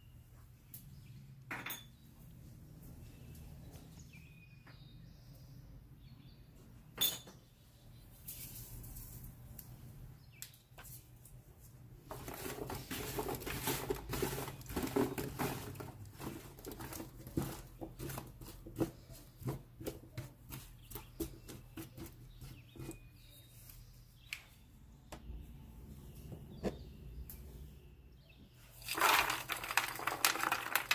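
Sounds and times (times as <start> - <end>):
rustling: 10.9 - 19.9, 28.7 - 30.9.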